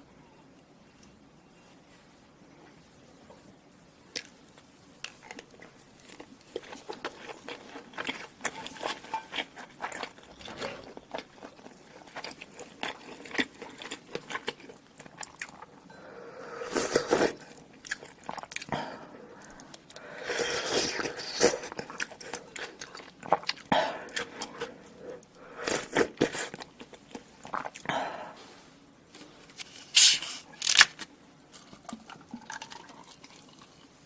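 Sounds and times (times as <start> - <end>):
person chewing food: 5.0 - 15.9, 16.6 - 28.2.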